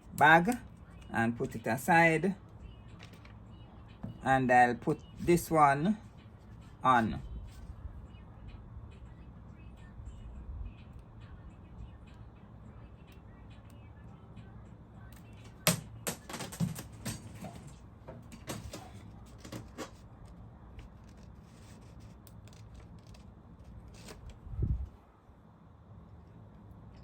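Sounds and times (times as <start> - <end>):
metal parts clicking and tapping: 15.4 - 20.0.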